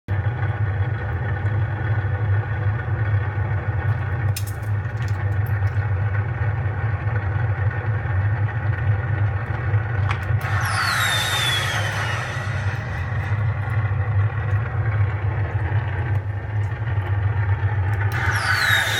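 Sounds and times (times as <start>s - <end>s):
simulated engine idling rumble: 0.1s - 18.9s
high whine falling in pitch: 10.4s - 18.9s.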